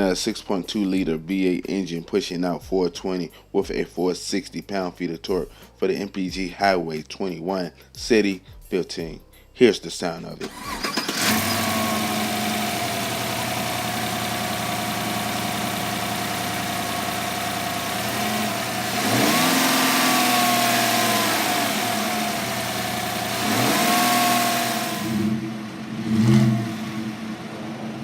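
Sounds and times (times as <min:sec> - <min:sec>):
truck engine idling and revving: 0:10.4 - 0:28.0.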